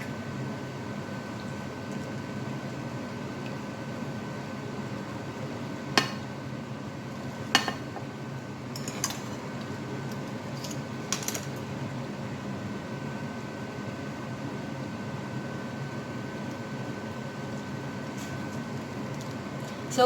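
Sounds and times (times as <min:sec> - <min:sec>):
steady background hum: 0:00.0 - 0:20.0
utensils clinking: 0:08.7 - 0:09.4.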